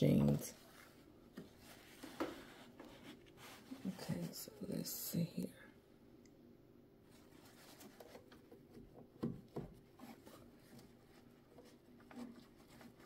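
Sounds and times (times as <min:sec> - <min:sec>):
faint rubbing: 0:00.3 - 0:04.8.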